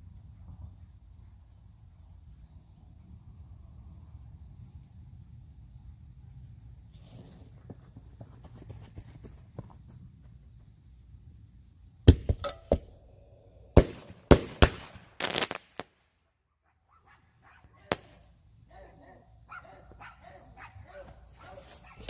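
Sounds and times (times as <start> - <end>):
firecracker crackling: 13.8 - 16.1
dog barking: 16.6 - 17.9, 18.7 - 22.0.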